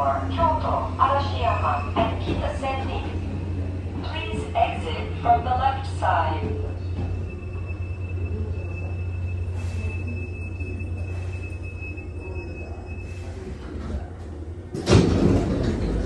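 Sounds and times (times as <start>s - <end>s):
electric train hum: 0.0s - 16.0s
thin high whine: 6.9s - 13.6s.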